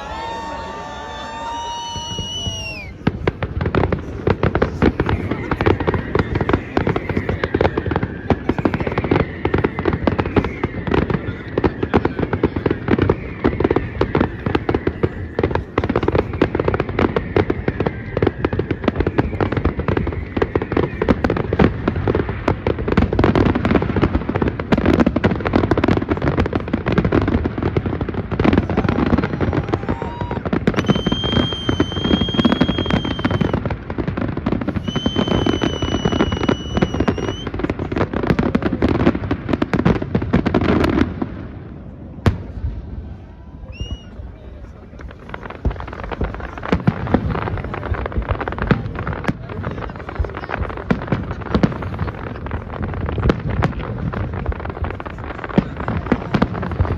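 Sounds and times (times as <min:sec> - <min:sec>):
fireworks bangs and crackles: 0:00.0 - 0:56.9
high-pitched whistles: 0:30.7 - 0:33.6, 0:34.8 - 0:37.5.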